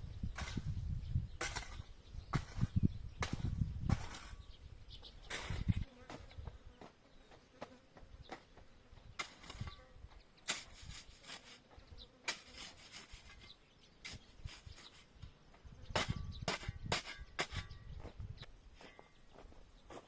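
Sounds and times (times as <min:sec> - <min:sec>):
short knocks and scrapes: 0:01.4 - 0:04.5, 0:05.2 - 0:06.9, 0:09.2 - 0:15.3, 0:15.9 - 0:18.2
flying insect buzzing: 0:05.4 - 0:10.2.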